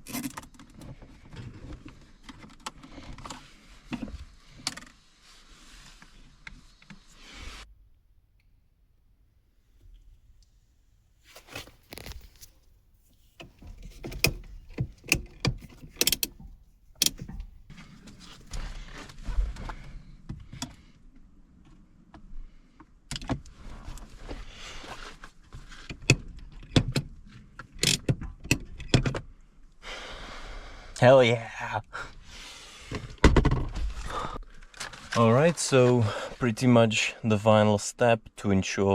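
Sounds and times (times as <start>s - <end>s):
plastic and metal parts clicking: 11.6s - 18.6s.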